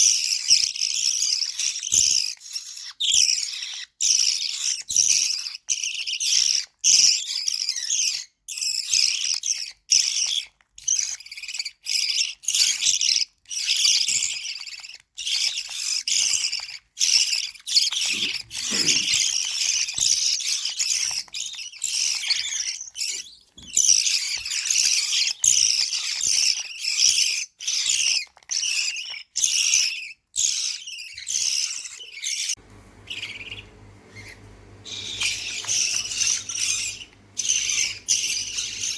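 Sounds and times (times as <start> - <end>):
bird chicks begging calls: 13.6 - 38.9.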